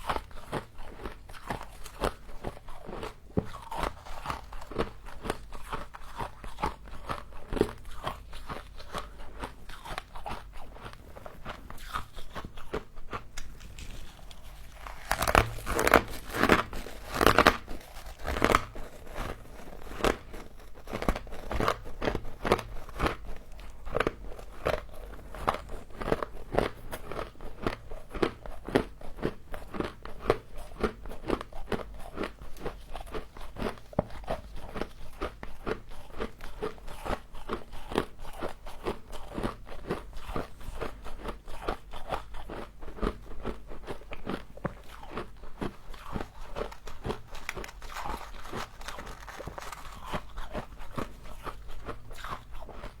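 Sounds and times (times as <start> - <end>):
crunching frost: 13.4 - 20.2, 45.9 - 52.4.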